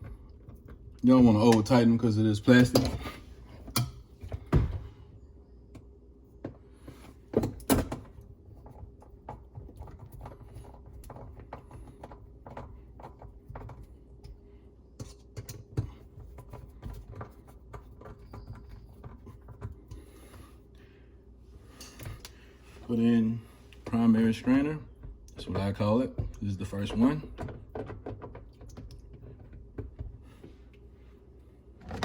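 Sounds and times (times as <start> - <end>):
plastic parts clicking and knocking: 25.0 - 30.1
plastic parts thunking: 31.8 - 32.0.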